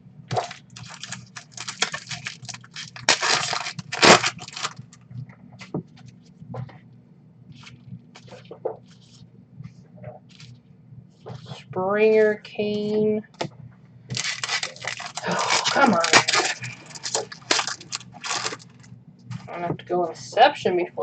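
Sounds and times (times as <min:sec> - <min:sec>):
low steady hum: 0:00.0 - 0:21.0
cards crinkling and rustling: 0:00.3 - 0:04.8, 0:14.1 - 0:18.9
foil wrapper tearing: 0:00.3 - 0:04.8, 0:14.1 - 0:18.9.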